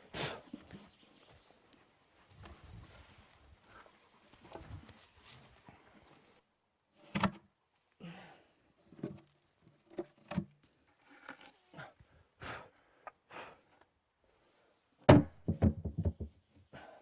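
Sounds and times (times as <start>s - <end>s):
light knocks and thuds: 15.1s - 16.4s.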